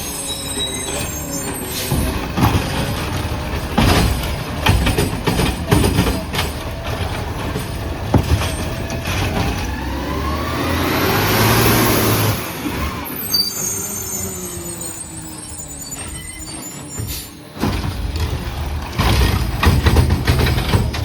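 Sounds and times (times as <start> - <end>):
garbage truck engine revving: 0.0 - 21.0.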